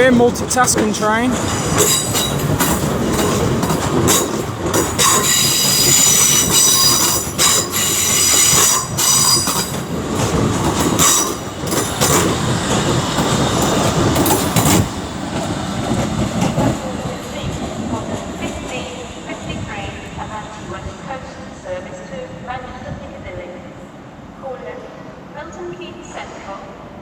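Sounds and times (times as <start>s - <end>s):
train wheels squealing: 5.0s - 9.8s, 11.0s - 12.1s.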